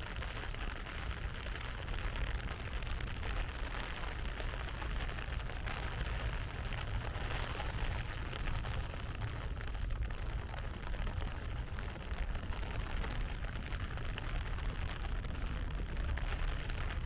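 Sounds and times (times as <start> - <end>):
heavy rain hiss: 0.0 - 17.0.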